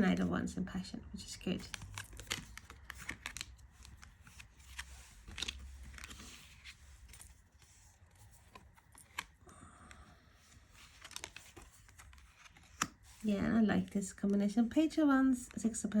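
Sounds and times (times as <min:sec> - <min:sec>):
cards sliding: 0:01.7 - 0:09.4, 0:10.5 - 0:13.2.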